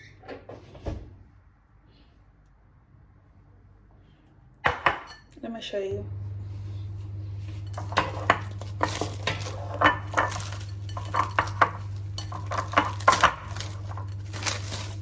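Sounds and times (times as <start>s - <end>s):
dishes and cutlery clinking: 4.7s - 5.4s, 7.5s - 15.0s
steady low hum: 5.9s - 15.0s.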